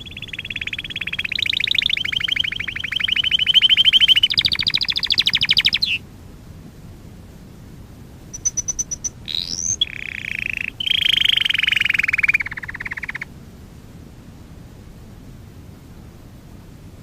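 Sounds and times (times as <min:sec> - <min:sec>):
canary singing: 0:00.0 - 0:06.0, 0:08.3 - 0:13.3.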